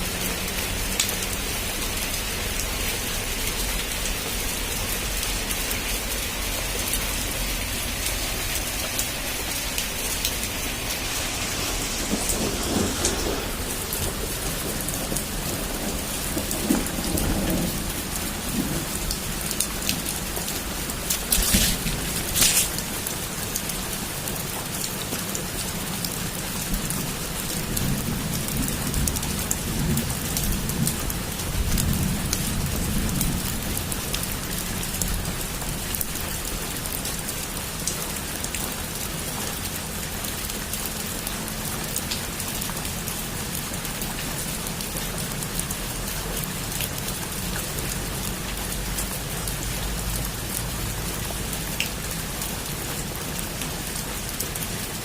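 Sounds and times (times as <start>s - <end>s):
heavy rain falling: 0.0s - 55.0s
low thunder rumble: 9.8s - 23.1s
sharp thunder crack: 11.4s - 17.8s.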